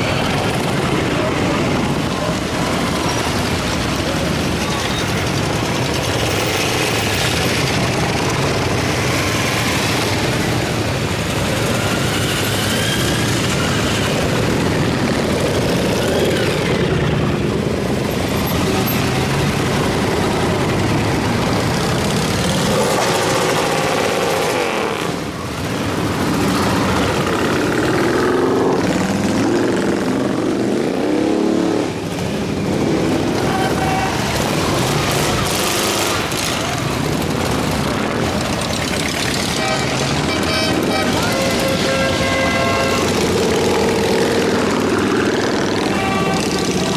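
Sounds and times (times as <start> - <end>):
motorcycles revving past: 5.6 - 46.9.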